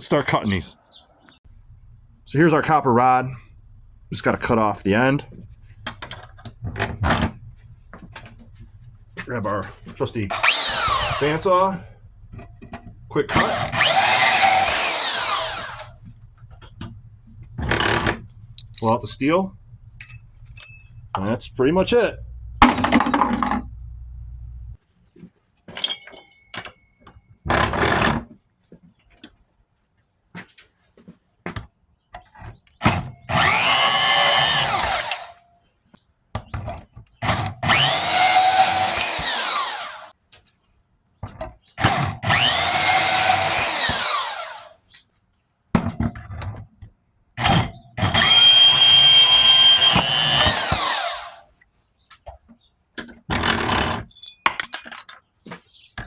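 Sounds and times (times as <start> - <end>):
bandsaw cutting metal rods: 9.9 - 12.6, 13.2 - 16.1, 17.6 - 19.2, 32.8 - 35.4, 37.2 - 40.1, 41.8 - 44.8, 47.4 - 51.5, 53.3 - 54.3
metal pieces clinking and knocking: 17.9 - 19.1, 20.0 - 21.6, 22.6 - 23.7, 25.7 - 27.1, 53.4 - 55.7.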